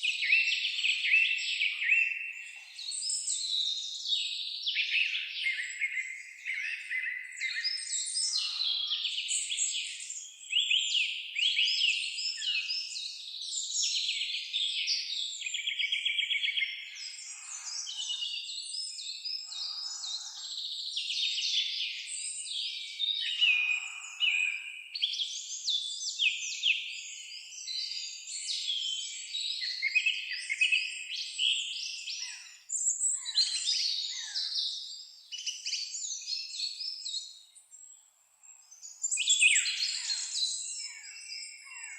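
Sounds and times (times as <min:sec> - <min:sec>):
songbirds chorus: 0:00.0 - 0:41.9.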